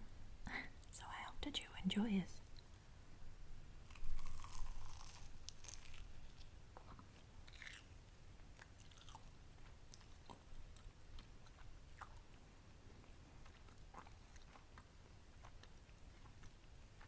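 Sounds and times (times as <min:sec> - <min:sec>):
chewing with wet clicks: 0:02.4 - 0:02.8, 0:03.9 - 0:17.0
biting with soft crunch: 0:03.8 - 0:17.0.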